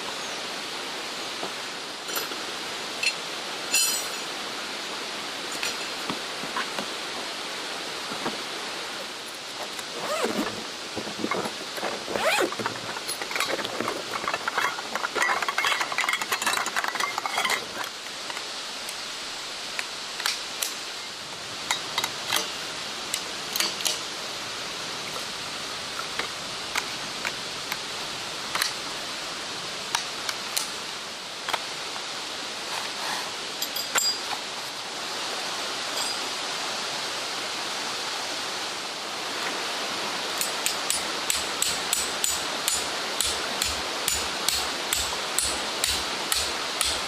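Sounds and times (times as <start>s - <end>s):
stream rushing: 0.0s - 47.0s
rustling and clinking handling: 9.6s - 18.4s, 33.6s - 34.5s.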